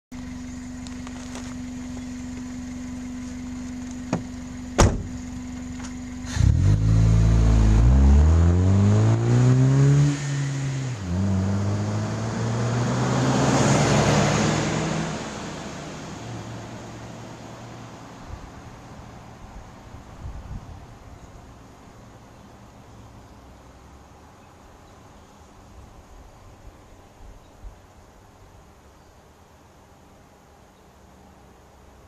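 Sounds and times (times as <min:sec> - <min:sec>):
car accelerating past: 0:06.2 - 0:18.0.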